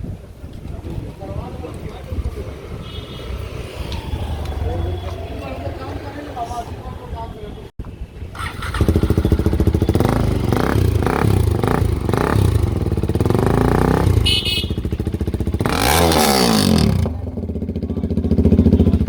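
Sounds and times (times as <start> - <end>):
motorcycle engine revving: 1.9 - 6.8, 8.3 - 19.0.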